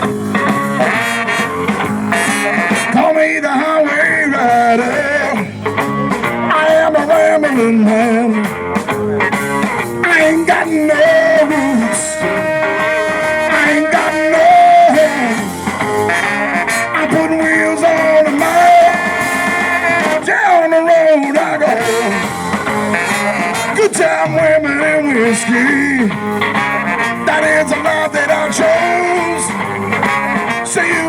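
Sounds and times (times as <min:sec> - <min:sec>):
lead melody with bending notes: 0:00.0 - 0:31.0
live blues-rock band: 0:00.0 - 0:31.0.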